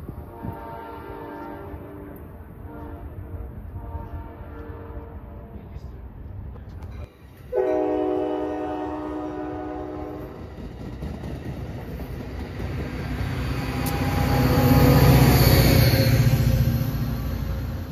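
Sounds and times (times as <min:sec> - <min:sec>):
train passing: 0:00.0 - 0:17.9
locomotive air horn: 0:00.2 - 0:05.9, 0:07.5 - 0:10.4.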